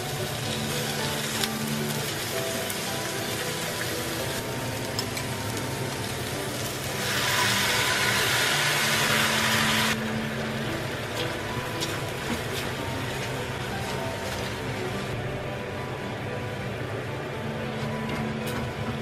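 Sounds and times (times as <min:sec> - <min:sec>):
onions sizzling in a pan: 0:00.0 - 0:15.2
sauce hissing in pan: 0:06.6 - 0:10.0.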